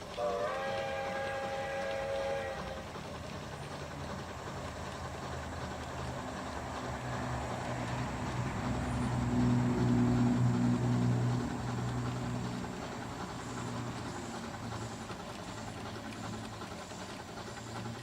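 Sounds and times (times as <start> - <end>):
chime steam whistle: 0.0 - 2.9
model locomotive running: 0.0 - 18.0.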